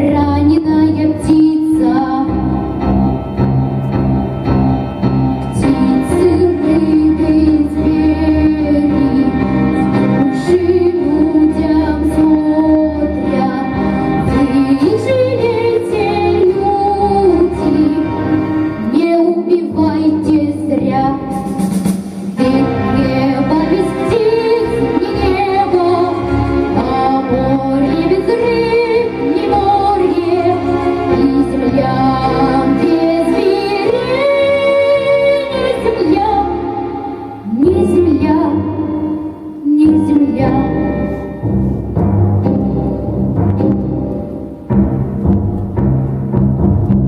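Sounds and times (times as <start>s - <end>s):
girl singing: 0.0s - 2.6s, 5.6s - 18.2s, 18.8s - 21.4s, 22.4s - 41.2s
instrumental accompaniment: 0.0s - 47.0s.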